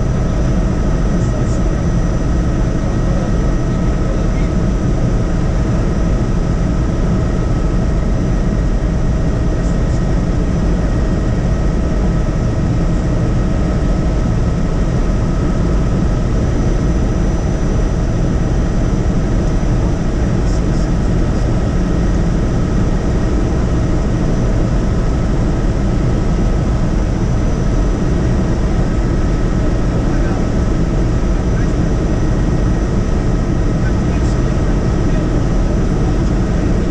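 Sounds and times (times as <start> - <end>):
helicopter rotor and engine drone: 0.0 - 36.9.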